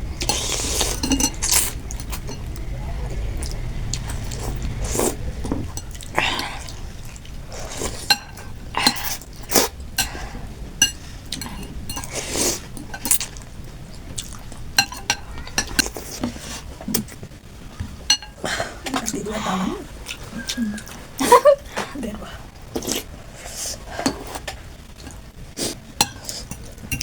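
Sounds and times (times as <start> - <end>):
cutlery clinking against bowl: 0.2 - 2.5, 7.8 - 9.2, 10.8 - 12.2, 14.8 - 16.4, 18.0 - 18.4, 26.0 - 27.0
chewing: 11.3 - 15.0.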